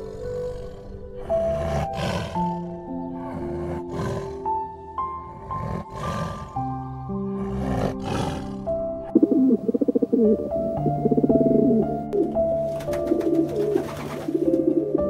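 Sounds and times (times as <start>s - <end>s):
tiger roaring: 0.0s - 8.8s
background music of long notes: 0.0s - 15.0s.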